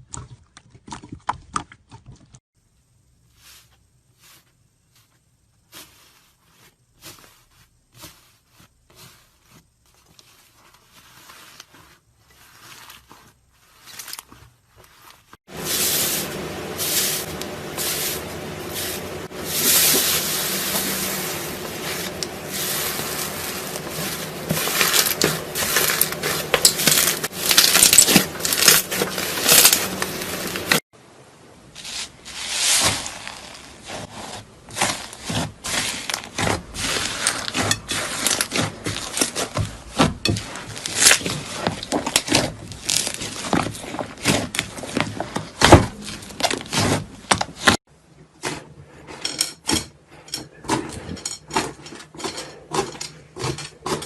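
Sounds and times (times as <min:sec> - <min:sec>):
slime squelching and crackling: 0:16.3 - 0:30.8.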